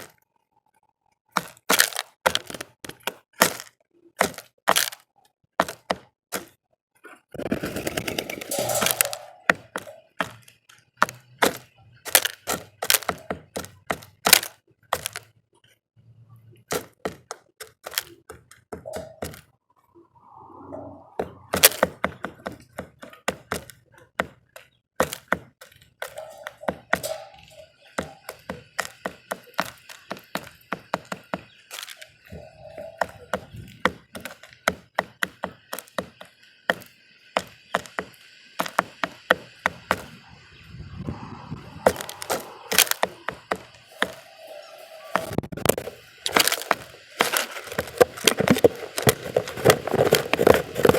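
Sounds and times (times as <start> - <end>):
birds pecking seed: 0.0 - 50.9
faint high background sound: 8.3 - 50.9
short bird calls: 26.1 - 34.3.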